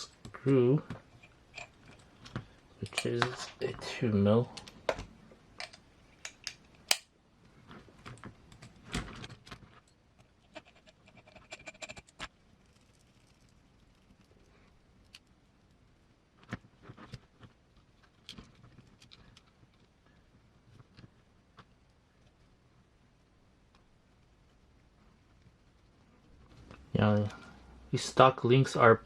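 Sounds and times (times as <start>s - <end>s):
small parts rattling: 8.0s - 14.4s.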